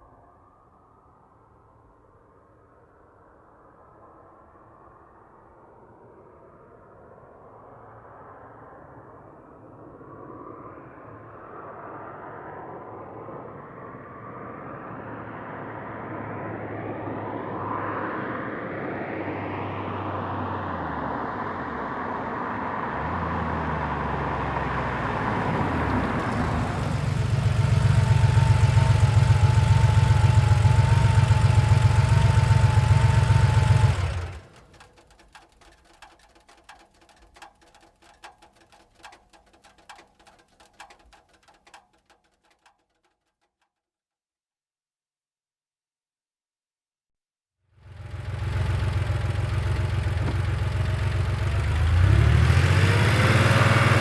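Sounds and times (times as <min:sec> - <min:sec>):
car engine approaching and idling: 0:15.2 - 0:42.8, 0:47.8 - 0:54.0
faint clicks: 0:33.2 - 0:43.1.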